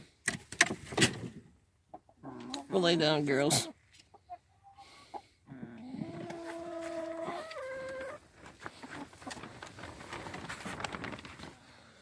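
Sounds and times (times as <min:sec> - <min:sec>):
hen calling: 0:02.2 - 0:08.2
rustling: 0:06.1 - 0:12.0.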